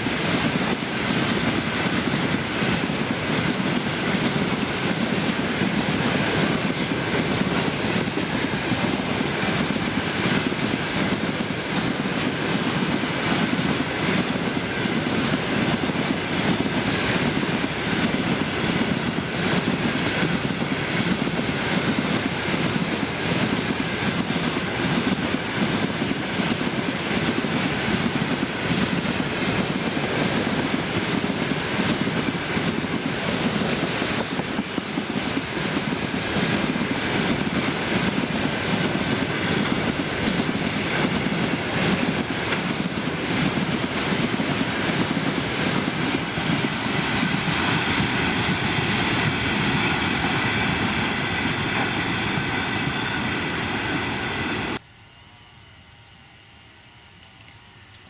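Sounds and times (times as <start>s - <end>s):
train wheels rolling on rail: 0.0s - 54.9s.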